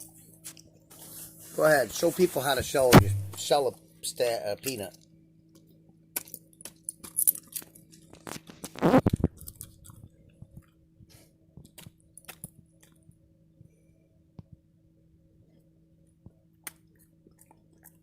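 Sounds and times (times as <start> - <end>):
dog chewing peanut shell: 16.9 - 18.0.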